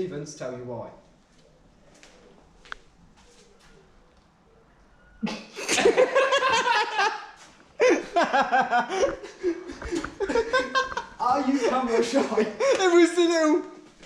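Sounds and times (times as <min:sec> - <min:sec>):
people laughing hard: 0:05.6 - 0:13.0.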